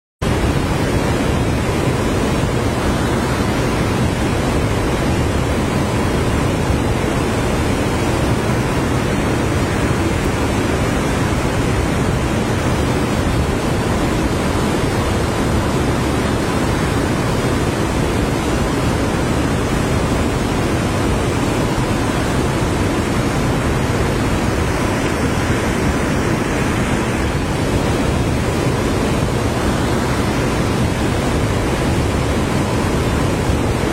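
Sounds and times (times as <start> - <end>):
river water rushing: 0.2 - 33.9.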